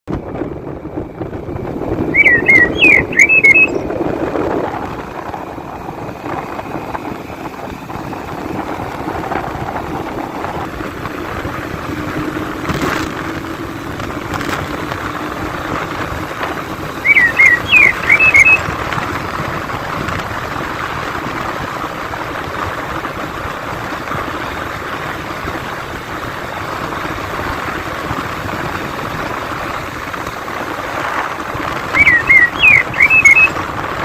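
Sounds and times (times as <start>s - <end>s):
small bird chirping: 2.1s - 3.9s, 17.0s - 18.6s, 31.8s - 33.6s.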